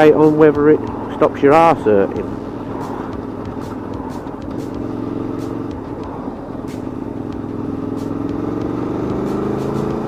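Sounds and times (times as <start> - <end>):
low wind rush: 0.0 - 8.4
motorcycle engine accelerating: 2.2 - 10.0.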